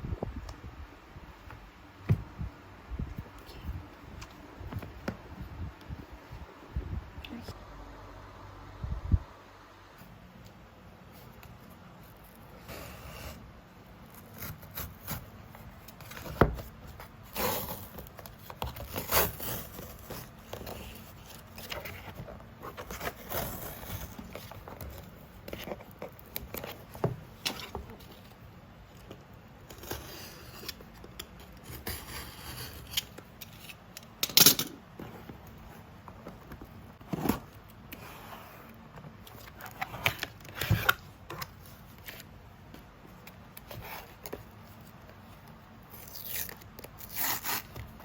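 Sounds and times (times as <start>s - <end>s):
packaging scraping and rustling: 14.0s - 28.4s.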